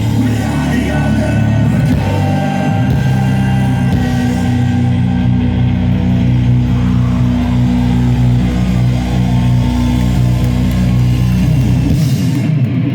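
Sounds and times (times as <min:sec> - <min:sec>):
doom metal band droning: 0:00.0 - 0:12.9.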